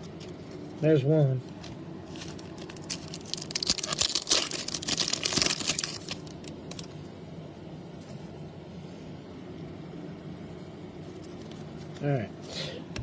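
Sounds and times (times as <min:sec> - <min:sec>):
card packaging crinkling: 0:00.0 - 0:07.0.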